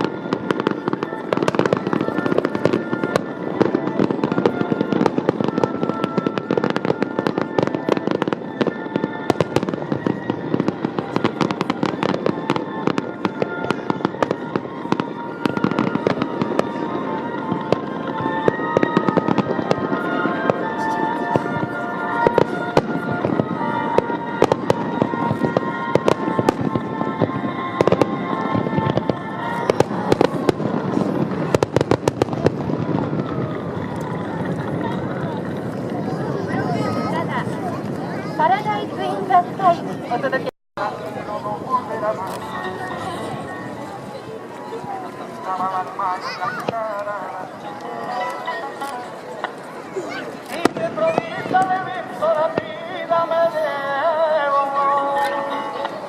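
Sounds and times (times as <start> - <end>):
fireworks crackling and popping: 0.0 - 56.0
music playing: 0.0 - 56.0.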